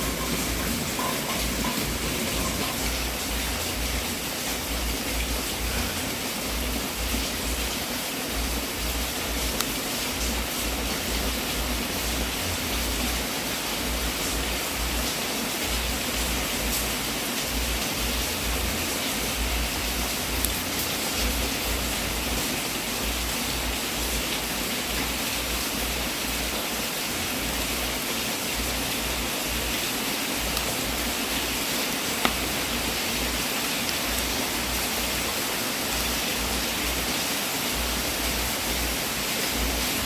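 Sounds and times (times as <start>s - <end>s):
fire crackling: 0.0s - 13.1s, 15.7s - 22.4s, 28.6s - 35.4s
wood fire hissing: 0.0s - 40.0s.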